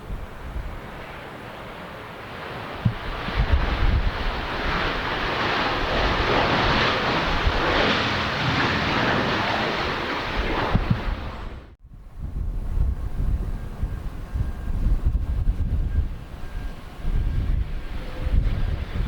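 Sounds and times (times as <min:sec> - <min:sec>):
wind thumping on microphone: 0:00.0 - 0:00.9, 0:02.8 - 0:07.8, 0:10.4 - 0:19.0
airliner engine noise: 0:00.0 - 0:19.0.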